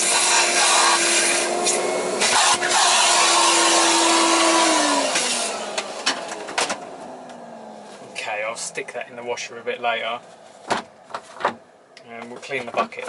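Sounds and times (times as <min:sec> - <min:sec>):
motor winding down: 0:00.0 - 0:07.7
vacuum cleaner running: 0:00.0 - 0:07.8
knocks: 0:10.7 - 0:11.6.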